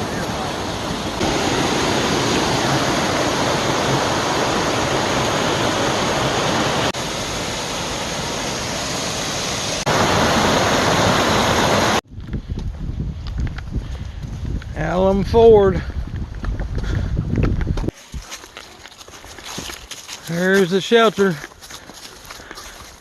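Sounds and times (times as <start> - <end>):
whitewater rushing: 0.0 - 12.0.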